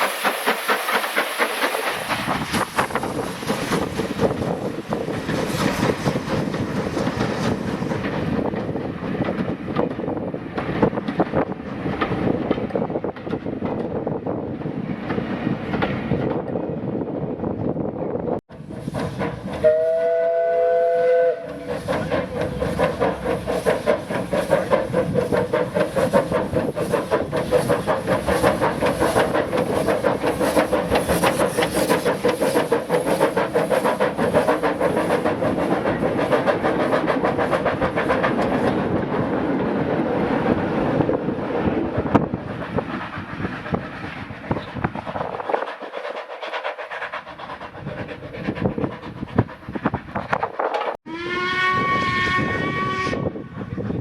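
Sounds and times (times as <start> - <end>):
steam locomotive exhaust beats: 0.0 - 17.9, 18.5 - 54.0
steam locomotive whistle: 19.6 - 21.7, 51.1 - 53.5.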